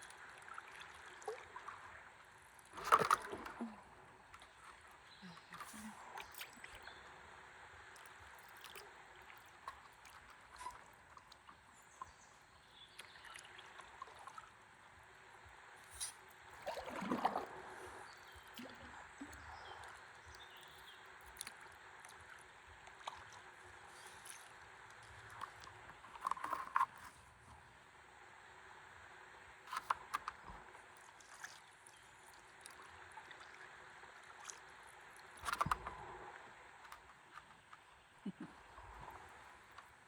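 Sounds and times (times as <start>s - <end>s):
small water drips: 0.0s - 7.1s, 7.9s - 14.7s, 15.8s - 27.1s, 29.7s - 40.0s
river water trickling: 0.0s - 40.0s
gurgling water splash: 16.6s - 19.0s.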